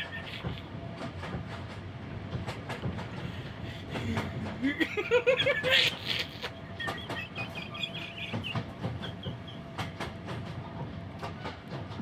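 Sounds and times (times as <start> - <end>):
railway coach wheels clicking: 0.0 - 12.0
train running rumble: 0.0 - 12.0.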